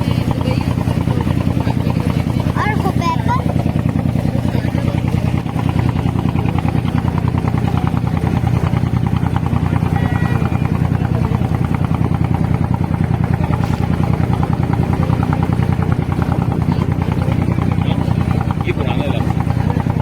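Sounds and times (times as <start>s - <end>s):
boat diesel engine chugging: 0.0s - 20.0s.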